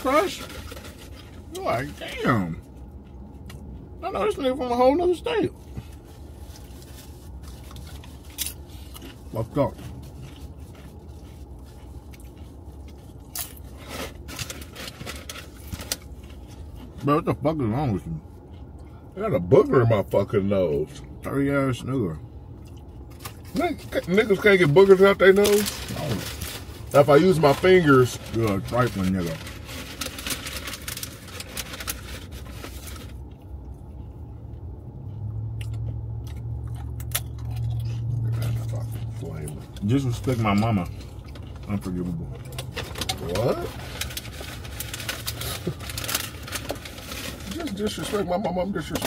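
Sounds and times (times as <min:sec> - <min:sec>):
crunching tortilla chips: 0:00.0 - 0:03.7, 0:05.8 - 0:17.0, 0:22.7 - 0:33.6, 0:35.1 - 0:48.2
low hum in a car: 0:00.0 - 0:49.0
chips crunching: 0:06.6 - 0:16.8
paper bag rustling: 0:24.3 - 0:33.2, 0:42.6 - 0:48.2.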